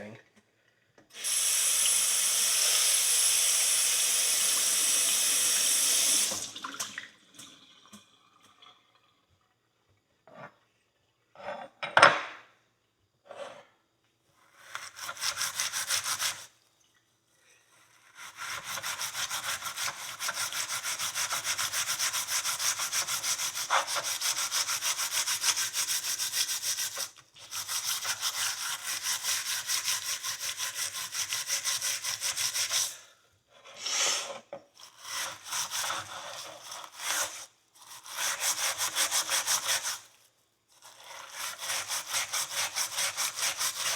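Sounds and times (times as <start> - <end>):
steel wool scrubbing metal: 34.8 - 40.1, 41.2 - 43.9.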